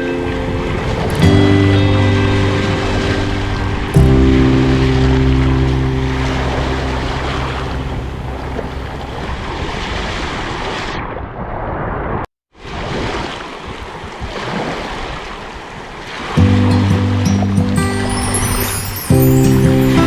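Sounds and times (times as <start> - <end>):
music: 0.0 - 9.0, 16.4 - 20.0
sea waves washing on shore: 0.0 - 11.0, 12.6 - 20.0.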